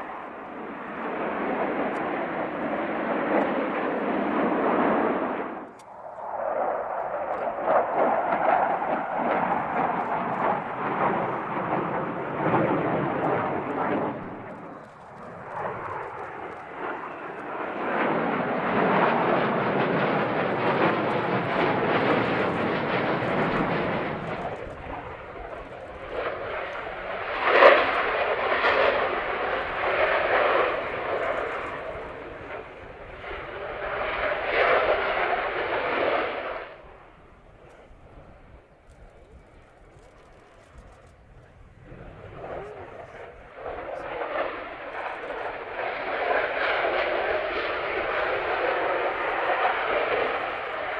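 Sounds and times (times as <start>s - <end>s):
jets flying past: 0.0s - 50.9s.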